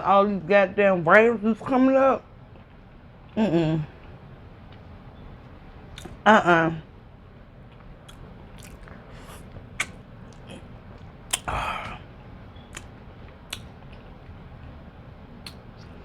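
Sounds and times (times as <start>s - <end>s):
chewing: 5.9s - 6.2s, 7.7s - 14.4s.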